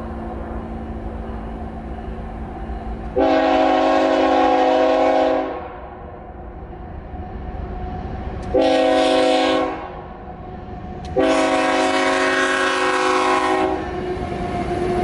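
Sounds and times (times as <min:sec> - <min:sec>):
low rumble of train: 0:00.0 - 0:15.0
locomotive air horn blast: 0:03.2 - 0:05.7, 0:08.5 - 0:09.9, 0:11.1 - 0:13.8.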